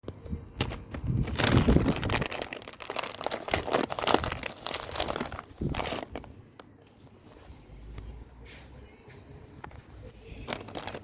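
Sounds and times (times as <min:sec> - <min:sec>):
crinkling and rustling: 0:00.0 - 0:08.8, 0:09.6 - 0:11.0.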